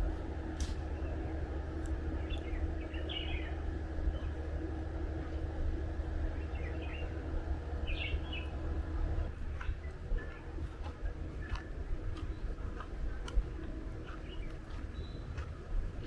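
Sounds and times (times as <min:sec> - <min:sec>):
steady low rumble: 0:00.0 - 0:16.0
small birds chirping: 0:00.8 - 0:04.6, 0:06.1 - 0:08.6, 0:09.5 - 0:16.0.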